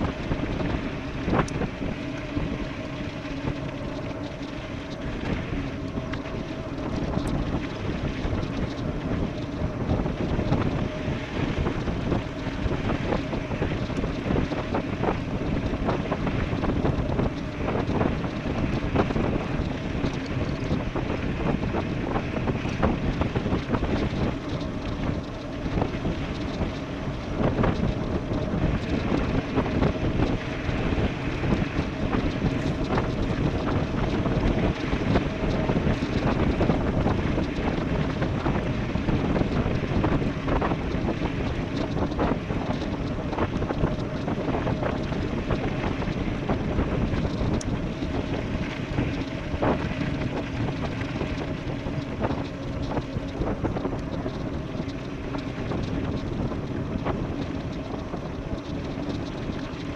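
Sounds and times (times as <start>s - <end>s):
faint steady hum: 0.0s - 59.9s
tyres rumbling on rough road: 0.0s - 59.9s
wind buffeting microphone: 0.0s - 59.9s.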